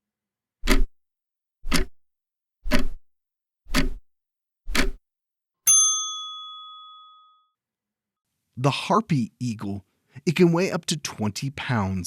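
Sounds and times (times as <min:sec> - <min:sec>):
clock ticking: 0:00.6 - 0:00.9, 0:01.7 - 0:02.0, 0:02.7 - 0:03.0, 0:03.7 - 0:04.0, 0:04.7 - 0:05.0
bell ding: 0:05.7 - 0:07.5.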